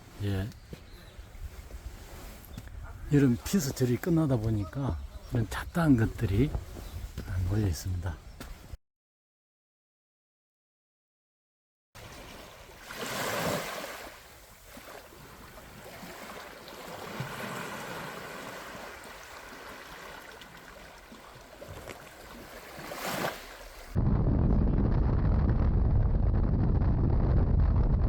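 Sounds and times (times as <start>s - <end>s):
wind rumble on microphone: 0.0s - 3.5s, 4.4s - 8.8s, 23.9s - 28.0s
surf washing onto beach: 12.0s - 24.0s.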